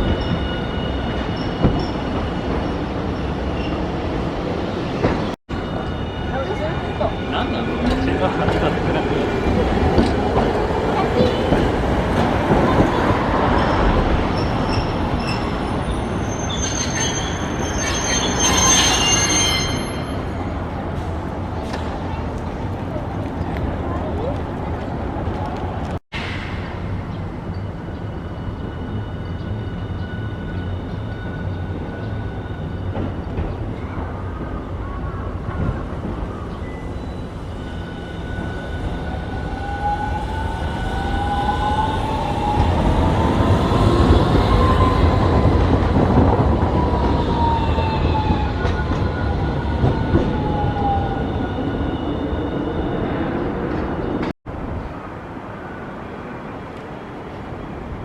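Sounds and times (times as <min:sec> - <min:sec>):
streetcar rumbling on rails: 0:00.0 - 0:58.0
steel wheels squealing: 0:13.4 - 0:20.5.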